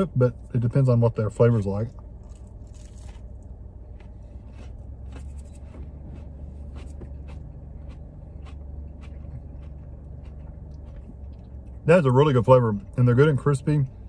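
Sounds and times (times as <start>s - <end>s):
car cabin rumble: 0.0s - 14.0s
person chewing crunchy food: 2.0s - 11.8s.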